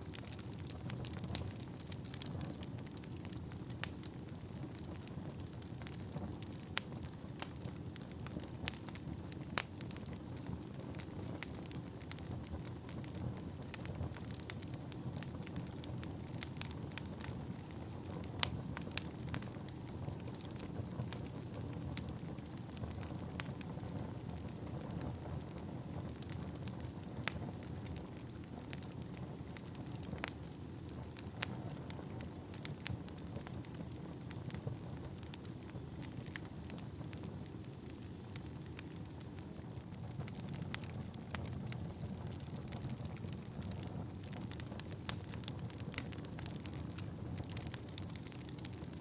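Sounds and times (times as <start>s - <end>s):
wood fire crackling and popping: 0.0s - 49.0s
thin high whistle: 34.1s - 39.8s.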